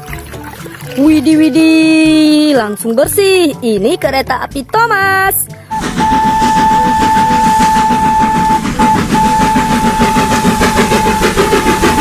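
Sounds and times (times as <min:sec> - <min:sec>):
held high tone: 0:05.7 - 0:12.0
train chugging clatter: 0:05.7 - 0:12.0.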